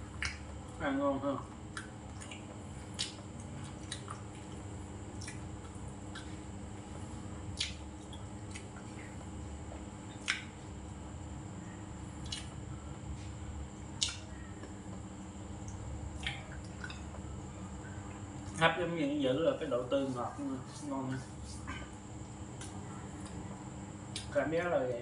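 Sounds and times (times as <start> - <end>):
man chewing food with wet smacks: 0.0 - 0.8, 1.4 - 18.6, 20.3 - 24.4
low room hum: 0.0 - 25.0.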